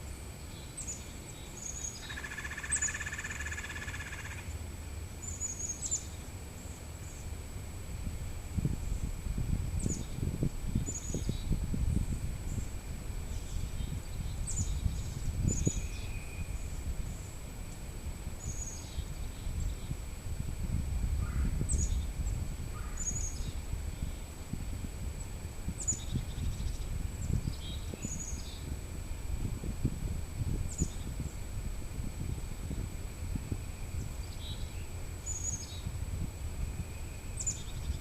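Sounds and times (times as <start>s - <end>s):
small birds chirping: 0.0s - 4.6s, 5.2s - 7.4s, 9.8s - 20.0s, 21.2s - 24.3s, 25.2s - 28.8s, 30.7s - 31.5s, 33.6s - 36.0s, 36.6s - 38.0s.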